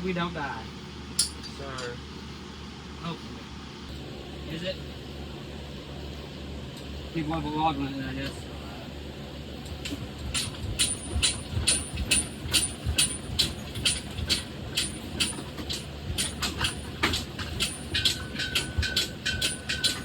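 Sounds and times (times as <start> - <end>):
engine hoist clicking: 9.7 - 20.0.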